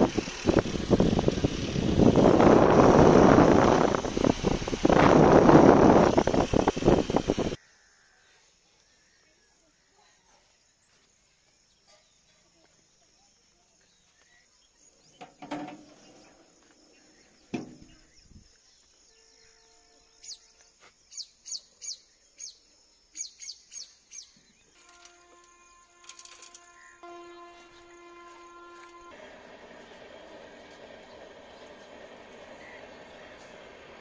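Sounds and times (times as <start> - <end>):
small bird chirping: 8.7 - 24.8.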